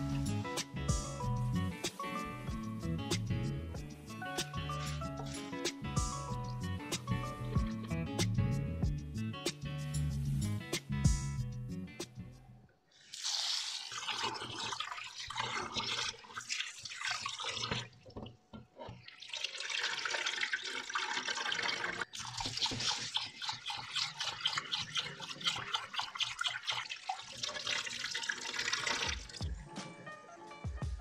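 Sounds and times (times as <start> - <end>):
tap water running into bowl: 13.1 - 29.6.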